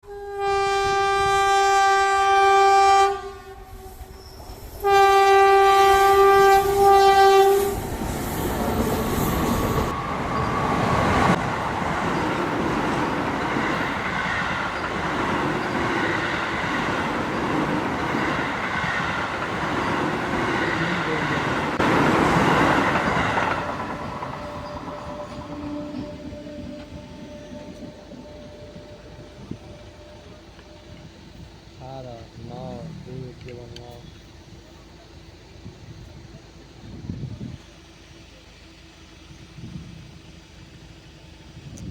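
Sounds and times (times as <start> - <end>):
train horn blasts: 0.0 - 11.5, 23.5 - 32.6
train passing on rails: 0.0 - 41.9.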